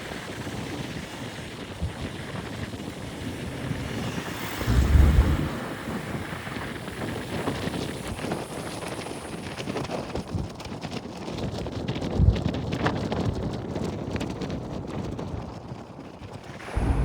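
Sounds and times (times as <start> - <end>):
wind buffeting microphone: 4.3 - 6.4, 16.6 - 17.0.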